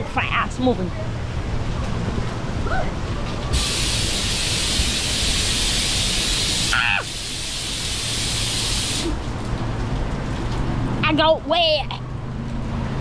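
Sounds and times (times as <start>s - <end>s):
rushing water hiss: 3.5s - 9.4s.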